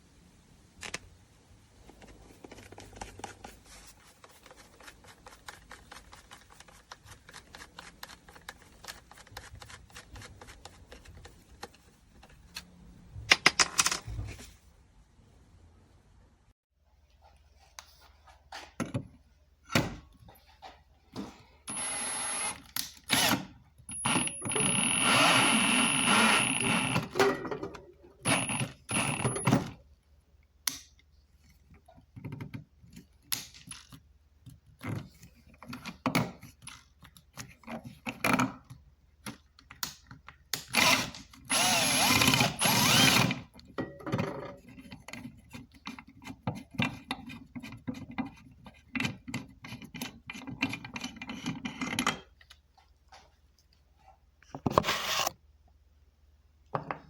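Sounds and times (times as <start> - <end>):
drill driver running: 21.7 - 27.1, 28.3 - 29.4, 40.8 - 43.4.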